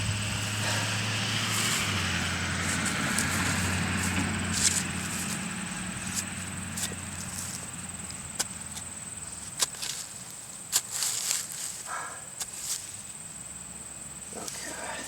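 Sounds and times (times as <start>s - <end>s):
low motor hum: 0.0s - 9.3s
hands rustling through soil: 0.0s - 13.4s, 14.3s - 15.0s.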